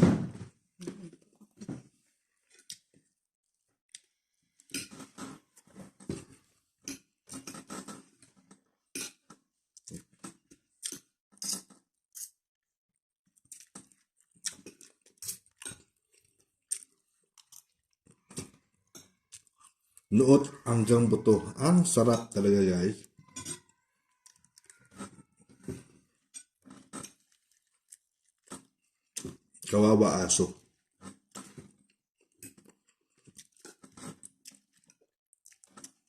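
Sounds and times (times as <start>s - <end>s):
chewing and lip-smacking: 2.5s - 3.0s, 13.4s - 20.1s, 23.3s - 29.7s, 30.7s - 36.0s.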